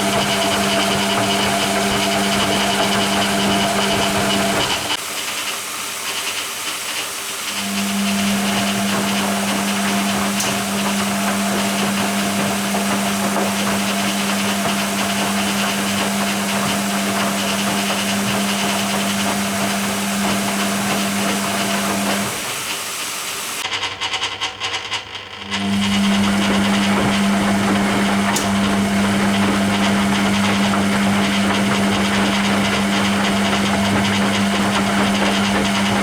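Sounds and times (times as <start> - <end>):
water running into washing machine: 0.0 - 23.6, 25.6 - 36.0
washing machine wash sound: 0.0 - 23.7, 25.6 - 36.0.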